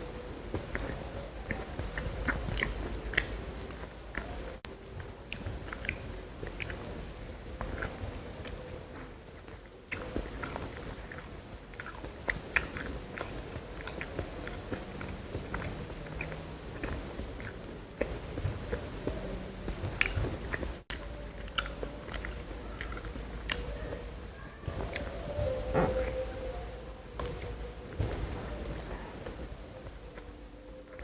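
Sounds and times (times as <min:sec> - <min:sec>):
person chewing crunchy food: 0:00.0 - 0:26.3
wet mouth clicks: 0:00.6 - 0:07.0, 0:09.4 - 0:24.0.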